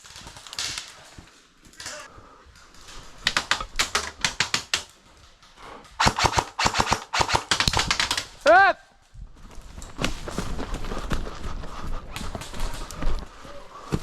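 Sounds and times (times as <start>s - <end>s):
airsoft guns firing: 6.0s - 8.4s.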